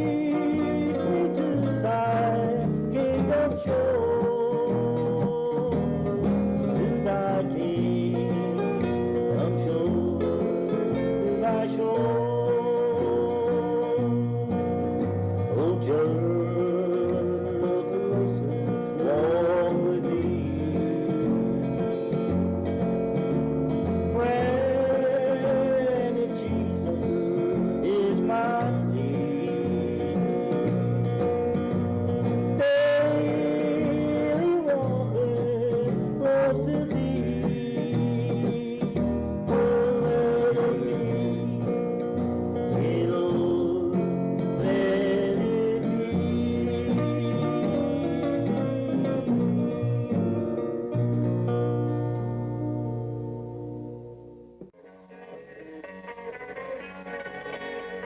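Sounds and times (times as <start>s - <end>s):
country gospel band music: 0.0s - 53.7s, 55.0s - 58.0s
sliding guitar notes: 0.0s - 58.0s.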